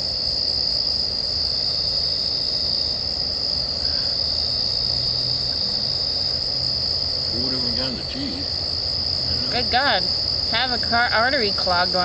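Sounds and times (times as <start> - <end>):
night insects chorus: 0.0 - 12.0.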